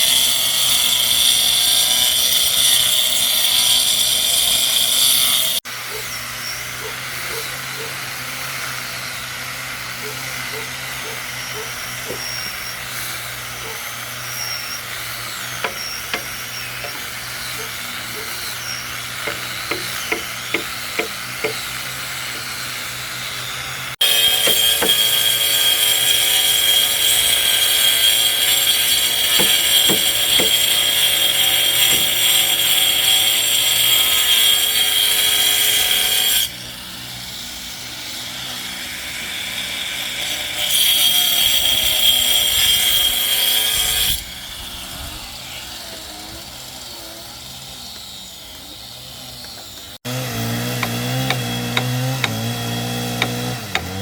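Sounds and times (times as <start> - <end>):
power tool whining on wood: 0.0 - 54.0.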